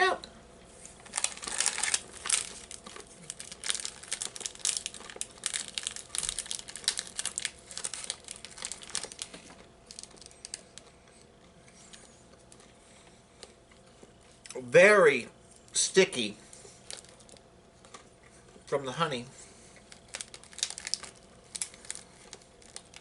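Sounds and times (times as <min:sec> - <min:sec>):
plastic wrapper crinkling: 0:01.0 - 0:11.2, 0:16.8 - 0:18.1, 0:19.8 - 0:23.0.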